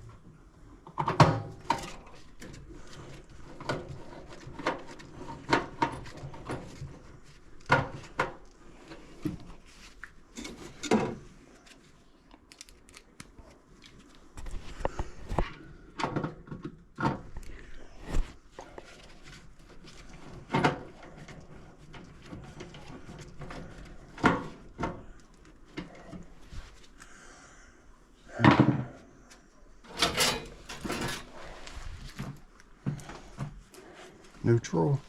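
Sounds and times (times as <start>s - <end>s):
knocks and clunks of metal parts: 29.9s - 31.6s.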